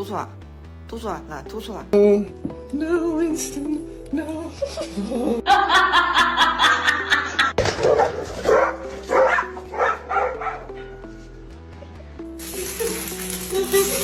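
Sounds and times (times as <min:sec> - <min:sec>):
background music: 0:00.0 - 0:14.0
dog barking: 0:07.7 - 0:11.0.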